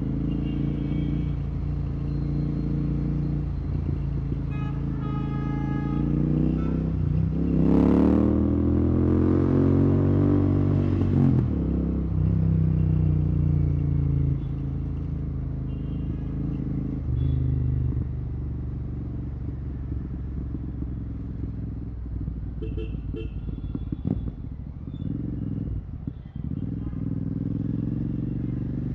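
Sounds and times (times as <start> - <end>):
motorcycle engine revving: 5.8 - 28.9.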